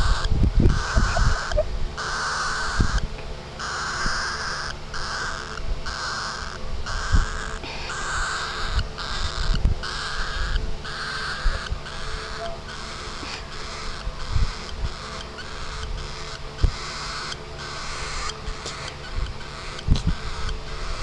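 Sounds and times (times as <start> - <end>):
bird giving harsh raspy calls: 0.0 - 21.0.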